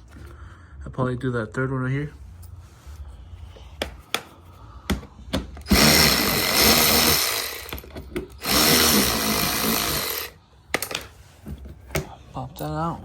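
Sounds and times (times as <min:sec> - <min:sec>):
electric drill running: 0:05.6 - 0:11.0.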